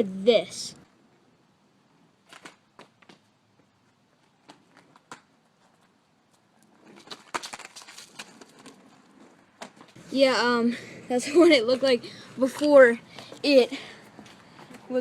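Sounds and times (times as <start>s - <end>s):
close rustling and crackling: 2.3s - 10.1s.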